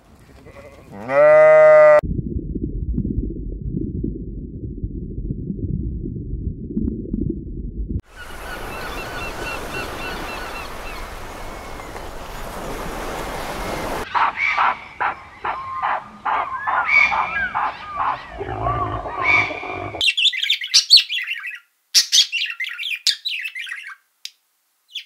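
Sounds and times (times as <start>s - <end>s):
birds chirping: 8.0s - 24.0s
high squawking bird calls: 8.1s - 12.0s, 14.1s - 24.0s
surf-like water hiss: 8.1s - 14.1s.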